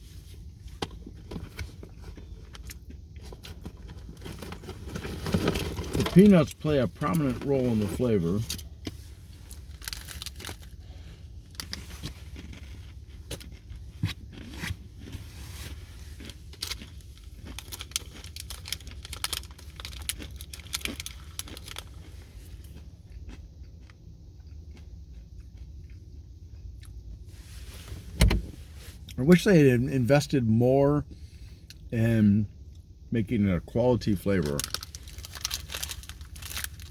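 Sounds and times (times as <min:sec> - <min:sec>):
person chewing crunchy bar: 0:00.9 - 0:08.8, 0:09.4 - 0:27.0, 0:34.1 - 0:36.9.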